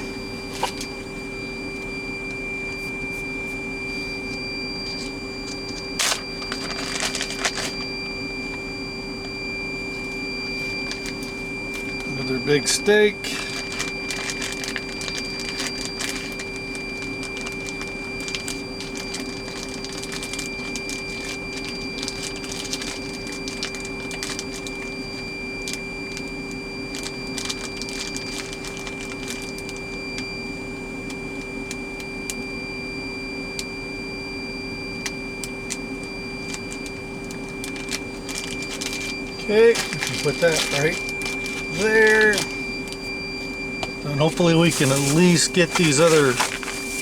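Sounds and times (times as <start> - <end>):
appliance humming with high whine: 0.0 - 47.0
plastic bag crinkling: 5.4 - 8.0, 12.1 - 26.2, 26.9 - 29.8, 36.4 - 43.0, 44.0 - 47.0.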